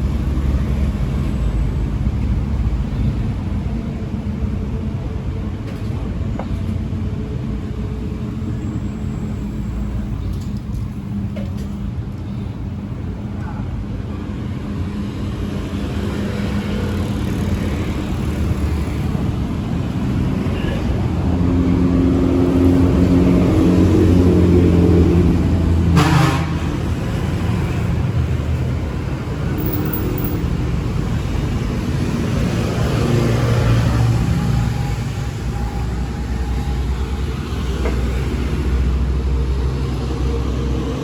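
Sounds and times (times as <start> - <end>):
vehicles passing: 0.0 - 41.0.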